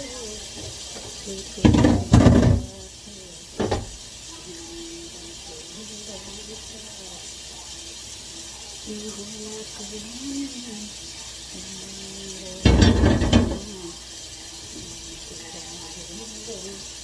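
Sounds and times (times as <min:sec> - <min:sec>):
dishes clattering in a sink: 0:00.0 - 0:04.1, 0:12.5 - 0:14.0.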